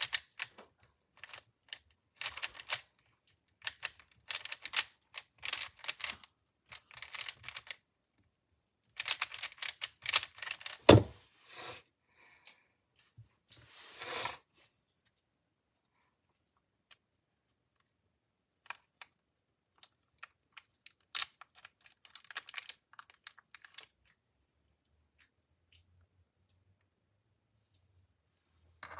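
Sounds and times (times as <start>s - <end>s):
plastic puzzle cube clicking: 0.0s - 0.5s, 1.2s - 7.8s, 8.9s - 11.1s, 18.6s - 24.2s
loud thump: 10.9s - 11.2s.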